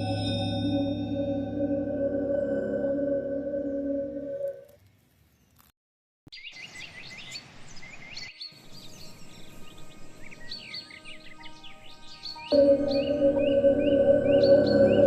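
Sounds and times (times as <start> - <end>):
bell-like music drone: 0.0 - 4.6, 12.4 - 15.0
birds chirping: 6.3 - 15.0
steady outdoor hiss: 6.6 - 15.0.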